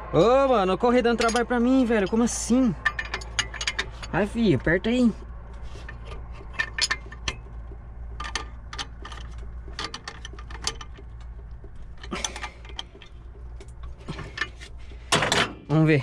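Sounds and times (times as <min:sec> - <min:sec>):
steady low hum: 0:00.0 - 0:16.0
wrench clicking on metal: 0:01.2 - 0:04.2.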